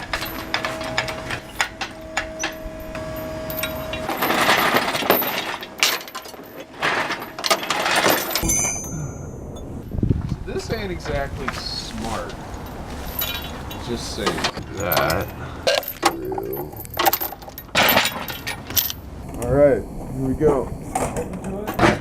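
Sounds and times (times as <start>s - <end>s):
metal tools clinking: 0.0s - 9.8s, 12.6s - 19.0s
rattling and scraping: 0.0s - 19.0s.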